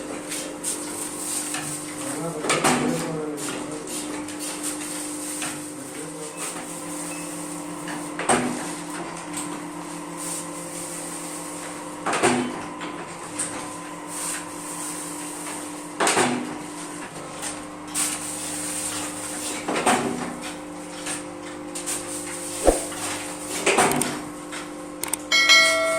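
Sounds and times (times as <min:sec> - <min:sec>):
sharp click: 0:22.6 - 0:23.0.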